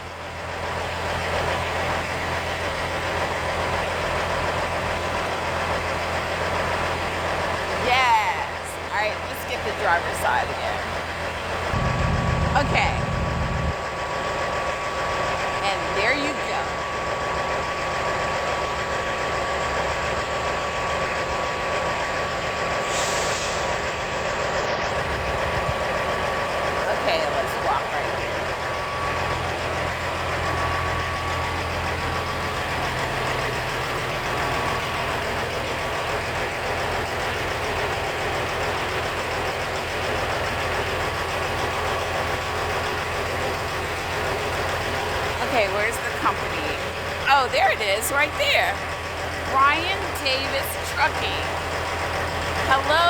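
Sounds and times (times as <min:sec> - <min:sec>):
truck diesel engine idling: 0:00.0 - 0:53.0
air hiss: 0:22.9 - 0:23.7.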